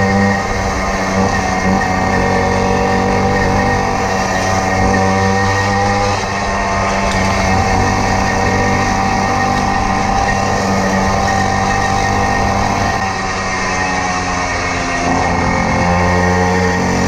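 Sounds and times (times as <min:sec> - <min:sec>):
two-stroke moped engine running: 0:00.0 - 0:17.0.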